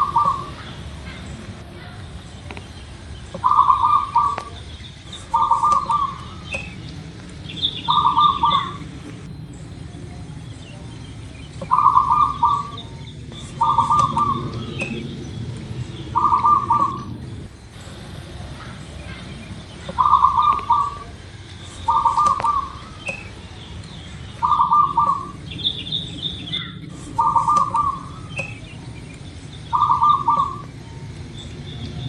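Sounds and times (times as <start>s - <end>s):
dove cooing: 0.0s - 32.0s
small birds chirping: 0.0s - 32.0s.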